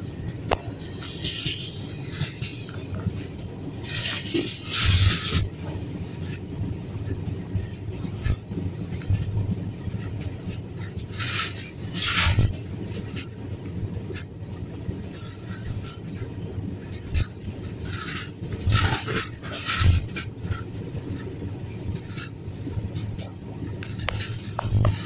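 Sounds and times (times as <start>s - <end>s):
train wheels rumbling on rails: 0.0s - 25.0s
rushing hiss: 0.8s - 2.9s.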